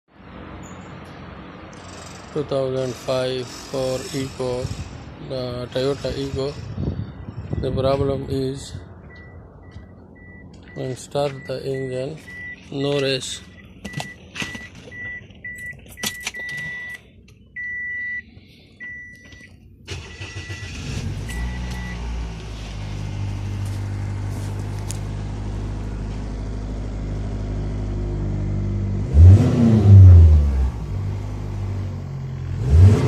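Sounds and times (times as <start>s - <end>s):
car engine starting and idling: 0.2s - 33.0s
car warning chime beeping: 9.0s - 22.1s
engine revving: 19.9s - 33.0s.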